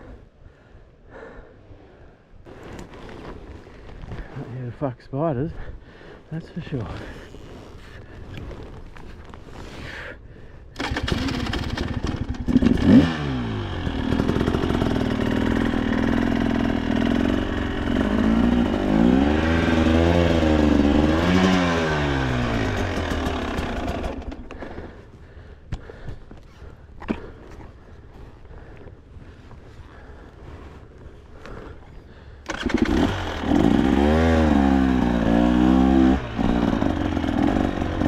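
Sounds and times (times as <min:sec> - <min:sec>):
dirt bike engine revving: 0:10.8 - 0:25.0, 0:32.5 - 0:38.0.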